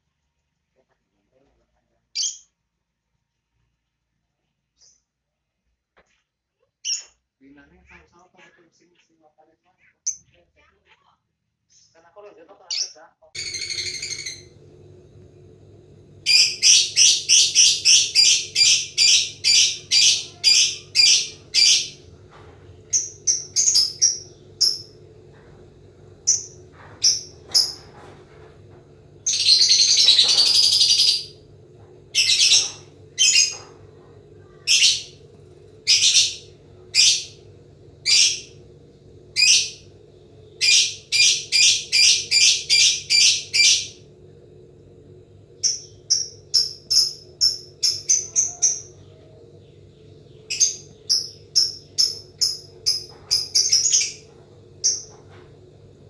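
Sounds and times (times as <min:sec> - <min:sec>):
bird trill: 0:12.7 - 0:14.6, 0:16.3 - 0:22.2, 0:22.8 - 0:25.0, 0:29.2 - 0:31.4, 0:32.1 - 0:33.8, 0:34.4 - 0:35.2, 0:35.8 - 0:37.4, 0:38.0 - 0:38.6, 0:39.3 - 0:39.8, 0:40.6 - 0:44.0, 0:45.6 - 0:55.2
bird shrill chirps: 0:13.4 - 0:14.6, 0:16.3 - 0:22.0, 0:29.2 - 0:31.4, 0:32.2 - 0:33.7, 0:35.8 - 0:37.4.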